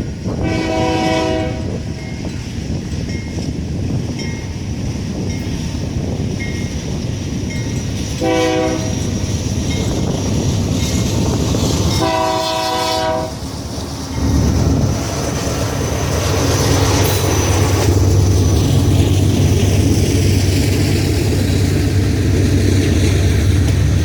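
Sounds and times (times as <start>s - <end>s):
locomotive engine rumbling: 0.0s - 24.0s
locomotive air horn blasts: 0.4s - 1.8s, 8.2s - 9.0s, 12.0s - 13.4s.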